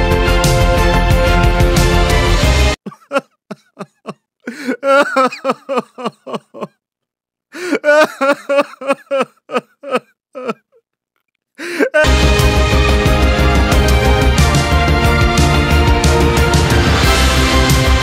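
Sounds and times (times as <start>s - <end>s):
background music: 0.0s - 2.8s, 12.0s - 18.0s.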